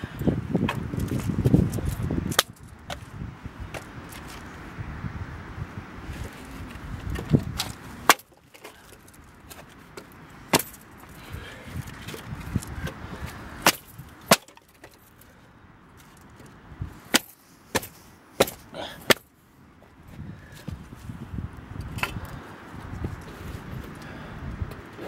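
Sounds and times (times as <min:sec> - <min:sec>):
dry wood cracking: 0:06.2 - 0:15.3, 0:15.9 - 0:19.3.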